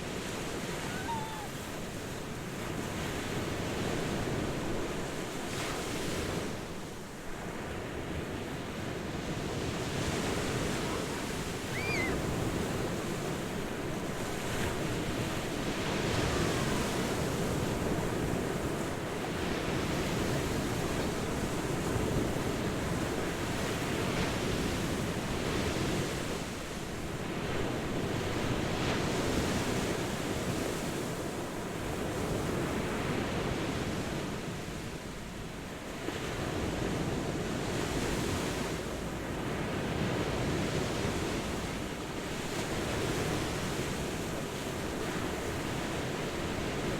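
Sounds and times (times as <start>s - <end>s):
ocean waves washing: 0.0s - 4.6s, 9.2s - 15.0s.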